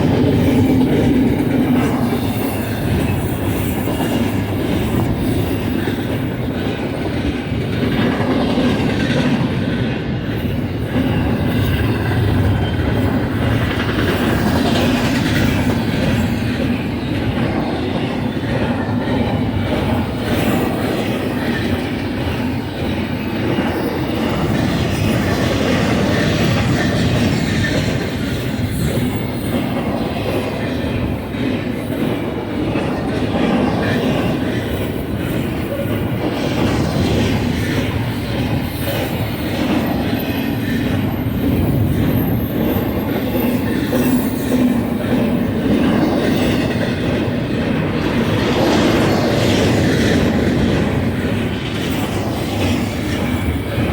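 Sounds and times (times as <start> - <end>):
train wheels rumbling on rail: 0.0 - 53.9.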